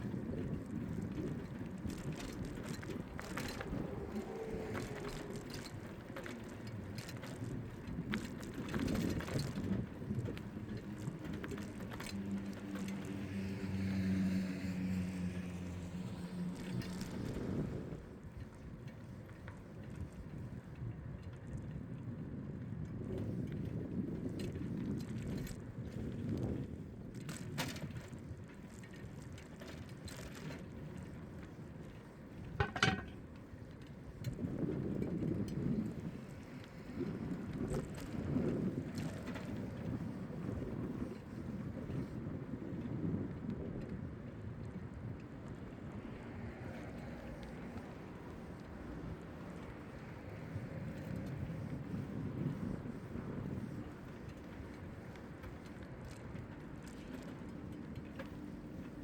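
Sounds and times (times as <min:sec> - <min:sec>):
motor vehicle engine hum: 0:00.0 - 0:18.3, 0:30.8 - 0:33.4
bicycle clicks and rattles: 0:00.0 - 0:59.0
road and wind noise: 0:00.0 - 0:59.0.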